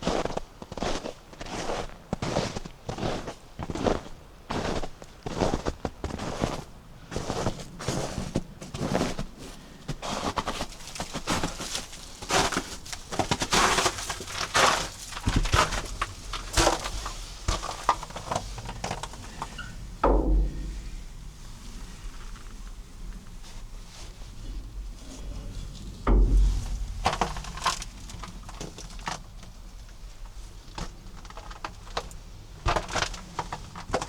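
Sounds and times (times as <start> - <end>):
brief low thump: 19.5 - 23.4, 24.4 - 29.4.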